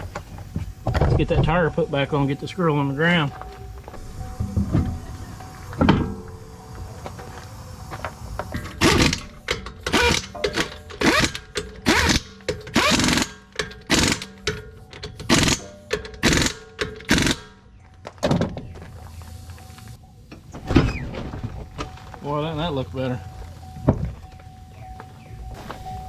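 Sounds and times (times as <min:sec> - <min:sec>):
impact wrench rattling bursts: 0:08.5 - 0:17.6.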